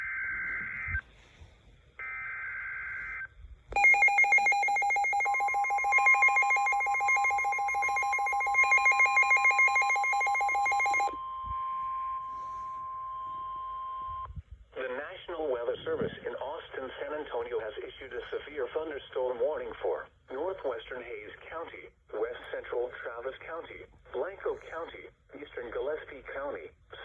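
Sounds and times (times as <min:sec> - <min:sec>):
rapidly pulsing alarm beep: 0:00.0 - 0:01.0, 0:02.0 - 0:14.2
steady warning alarm tone: 0:00.0 - 0:01.0, 0:02.0 - 0:14.2.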